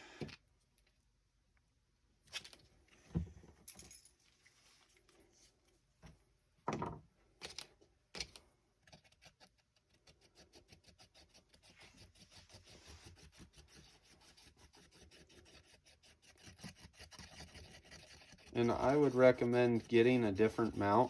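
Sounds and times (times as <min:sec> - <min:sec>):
rhythmic scraping of epoxy mixing: 0:08.8 - 0:21.0.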